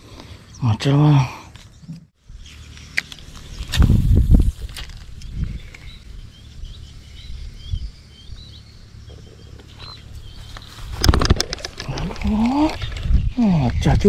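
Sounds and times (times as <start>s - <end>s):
low background rumble: 2.2s - 14.0s
songbird chirping: 5.1s - 14.0s.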